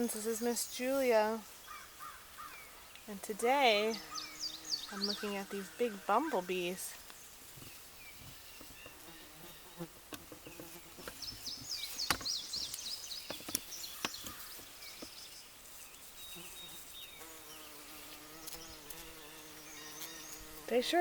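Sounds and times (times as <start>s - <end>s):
bumblebee buzzing: 3.3s - 6.7s, 8.7s - 12.6s, 16.2s - 21.0s.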